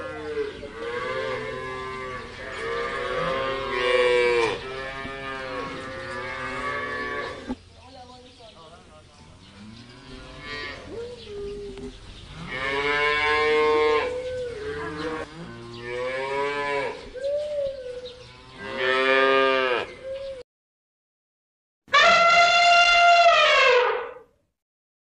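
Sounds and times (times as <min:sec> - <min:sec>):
cattle mooing: 0:00.0 - 0:07.5, 0:12.3 - 0:17.0.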